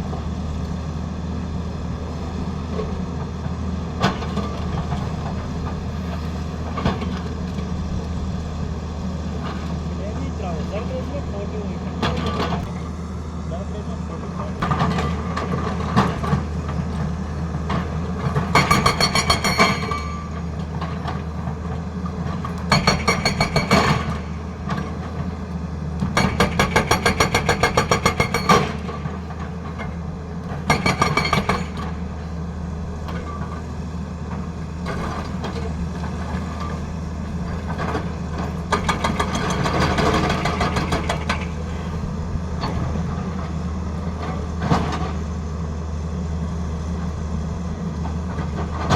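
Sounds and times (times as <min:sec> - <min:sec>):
excavator diesel engine running: 0:00.0 - 0:48.9
hydraulic breaker hammering: 0:22.7 - 0:24.4, 0:26.2 - 0:29.2, 0:30.6 - 0:32.0.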